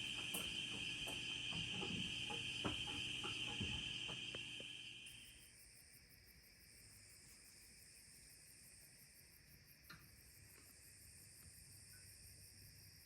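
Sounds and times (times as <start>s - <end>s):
faint clicks: 0.0s - 4.9s
high-pitched insect chorus: 0.0s - 13.0s.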